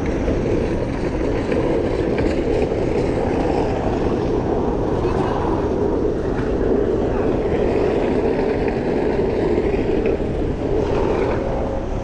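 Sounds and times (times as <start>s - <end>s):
road noise: 0.0s - 12.0s
wind on microphone: 0.0s - 12.0s.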